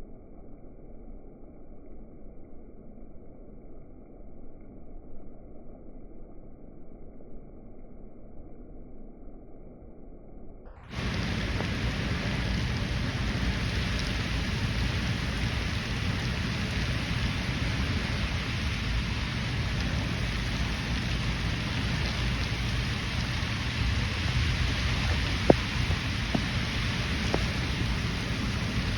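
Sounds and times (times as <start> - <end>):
heavy rain falling: 10.8 - 28.9
low rumble: 10.8 - 28.9.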